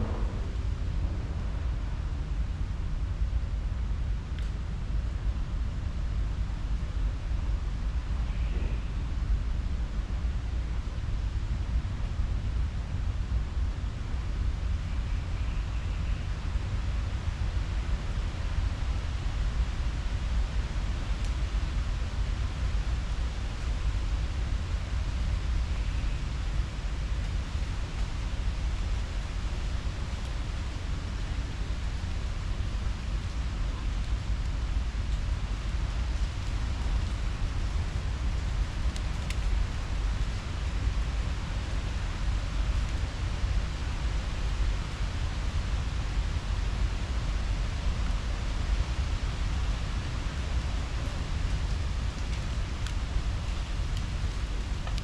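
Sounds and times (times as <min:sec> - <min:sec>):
fluttering low rumble: 0:00.0 - 0:03.4
wind buffeting microphone: 0:00.0 - 0:14.8
steady rushing outdoor noise: 0:00.0 - 0:55.0.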